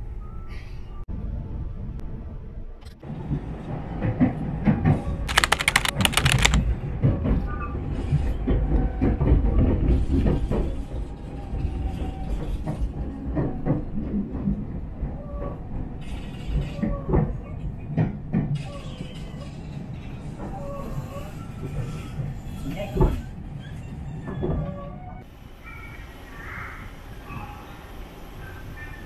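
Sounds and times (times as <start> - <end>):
rapid clicking: 5.3 - 6.6
train interior rumble: 6.8 - 29.0.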